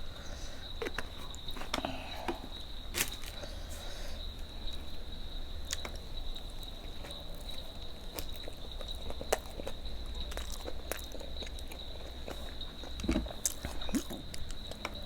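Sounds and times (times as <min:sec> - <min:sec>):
mouth clicks and chewing: 0:05.6 - 0:15.0.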